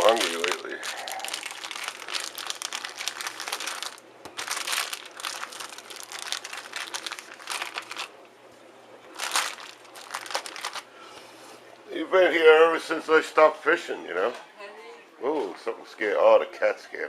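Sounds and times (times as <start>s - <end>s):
bag rustling: 0.0s - 8.1s, 9.1s - 10.9s.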